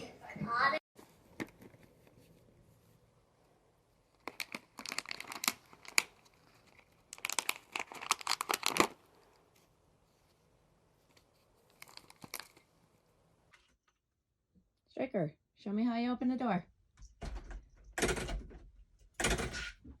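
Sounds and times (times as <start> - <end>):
crumpled material crackling: 3.8 - 13.2.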